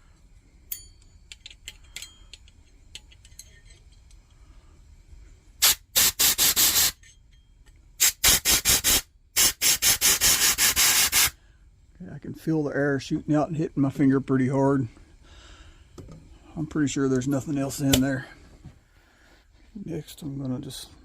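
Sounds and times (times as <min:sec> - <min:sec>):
faint clicks of parts handled: 0:00.1 - 0:04.4
air blow gun hissing blasts: 0:05.6 - 0:07.0, 0:08.0 - 0:11.4.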